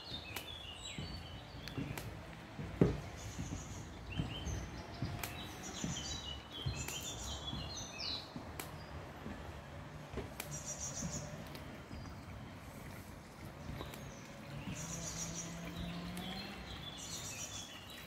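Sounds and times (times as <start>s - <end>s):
songbirds chirping and twittering: 0.0s - 18.0s
soft thumps: 0.8s - 13.0s.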